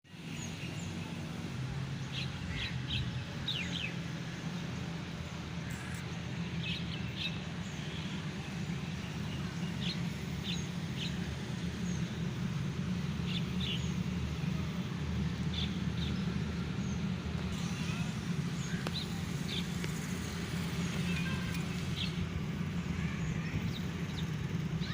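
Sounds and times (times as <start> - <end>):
birds chirping: 0.1 - 24.9.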